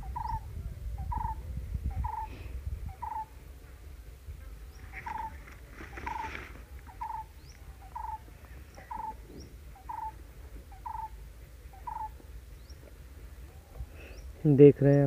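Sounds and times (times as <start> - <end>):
faint higher bird chirps: 0.0 - 3.4, 4.6 - 15.0
bird short call: 4.8 - 12.2
paper page rustling: 5.0 - 6.8.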